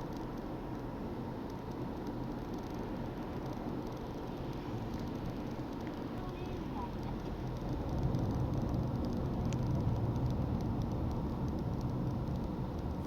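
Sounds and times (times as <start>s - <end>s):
road rumble: 0.0s - 13.0s.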